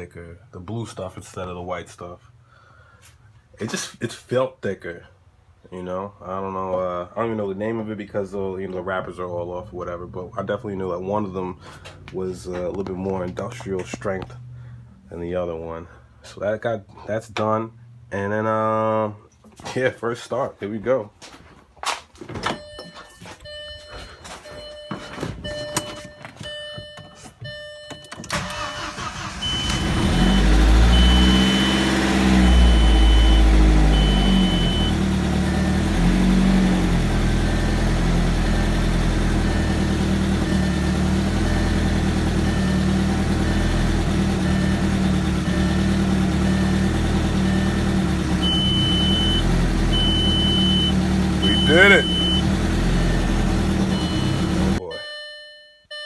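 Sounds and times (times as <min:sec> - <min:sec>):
dashboard warning chime beeping: 0:22.4 - 0:35.8, 0:39.5 - 0:56.0
engine cranking on starter: 0:28.2 - 0:54.8
engine revving and idling: 0:28.4 - 0:54.8.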